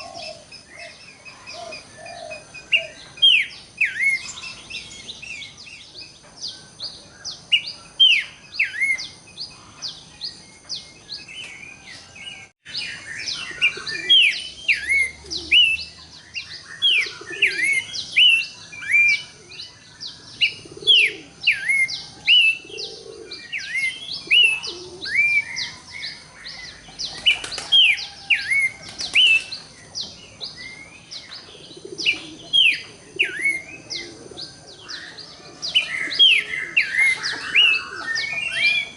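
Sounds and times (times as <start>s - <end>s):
bird singing whistled notes: 0.0s - 38.9s.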